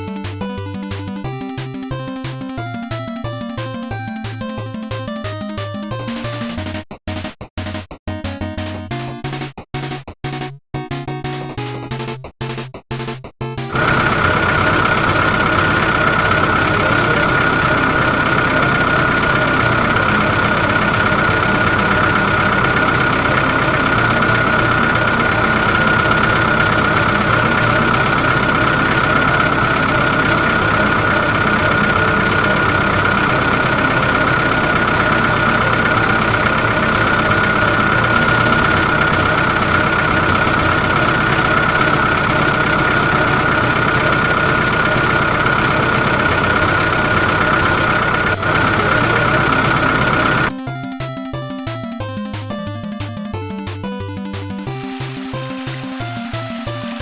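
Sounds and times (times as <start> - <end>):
high whine: 13.7 - 50.5
model vehicle engine idling: 13.7 - 50.7, 54.2 - 57.0.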